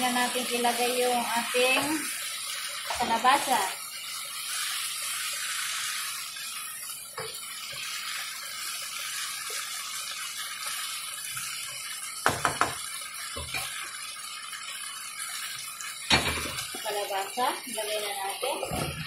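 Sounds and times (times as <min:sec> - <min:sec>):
food sizzling in pan: 0:00.0 - 0:19.0.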